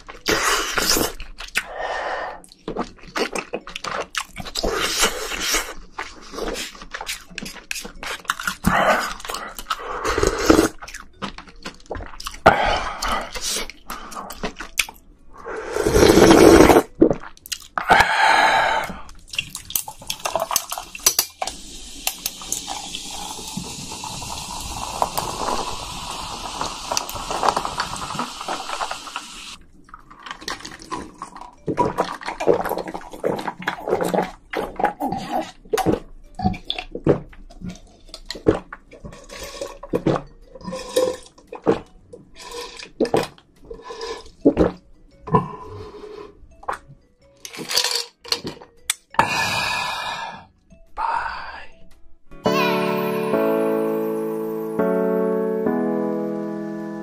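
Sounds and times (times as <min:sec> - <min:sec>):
noodle slurping and chewing: 0:00.0 - 0:21.2, 0:22.0 - 0:46.9
soda poured over ice fizzing: 0:20.2 - 0:29.6.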